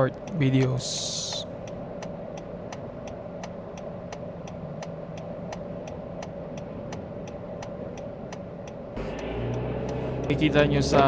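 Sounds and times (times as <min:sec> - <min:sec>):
idling vehicle hum: 0:00.0 - 0:02.4, 0:06.6 - 0:11.0
turn signal ticking: 0:00.0 - 0:11.0.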